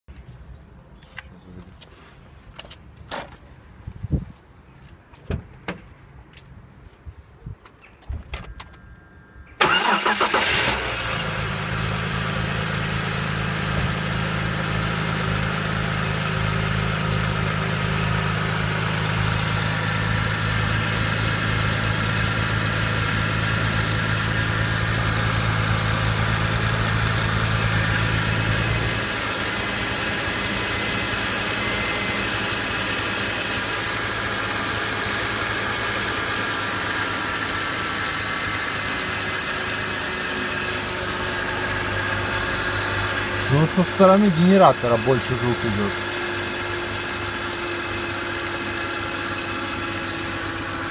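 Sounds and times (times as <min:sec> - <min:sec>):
car engine starting and idling: 0:09.5 - 0:50.9
high-pitched fluttering belt whistle: 0:45.9 - 0:50.9.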